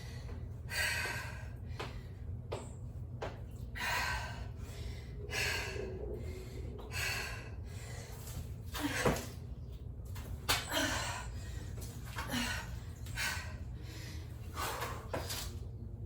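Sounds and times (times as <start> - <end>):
woman breathing hard: 0.0 - 2.5, 3.7 - 9.4, 10.6 - 15.2
steady low hum: 0.0 - 16.0.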